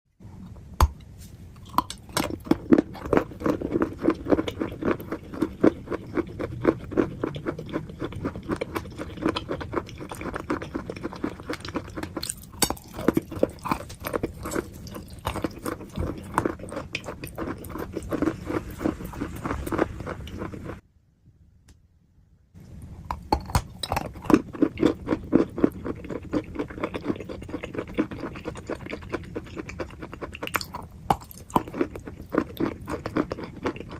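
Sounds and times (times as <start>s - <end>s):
crunchy chewing and biting: 0.4s - 20.8s, 22.9s - 33.9s.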